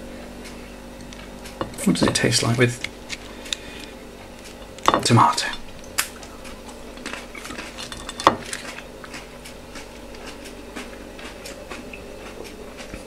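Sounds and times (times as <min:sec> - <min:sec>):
chewing with mouth clicks: 0:05.8 - 0:13.0.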